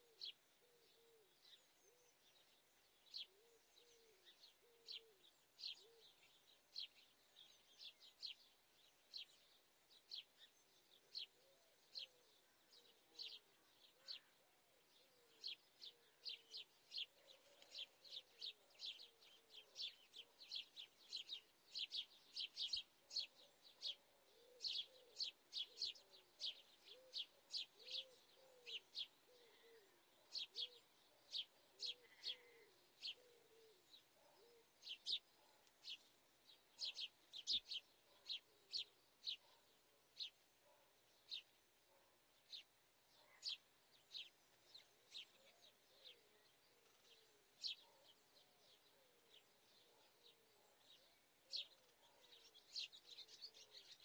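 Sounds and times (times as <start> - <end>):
low wavering bird calls: 0.0 - 2.3, 11.0 - 35.4
small birds chirping: 0.0 - 54.0.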